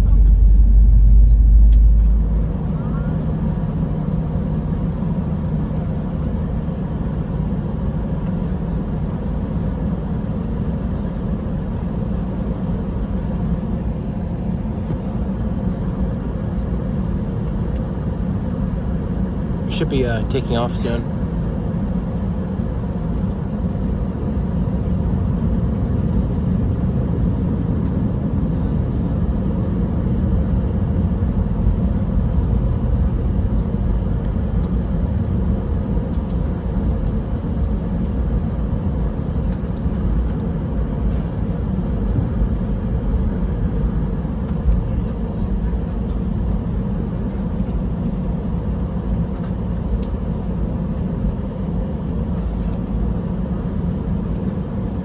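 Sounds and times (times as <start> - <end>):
faint steady hum: 0.0 - 4.0
jet engines rumbling in cabin: 0.0 - 55.0.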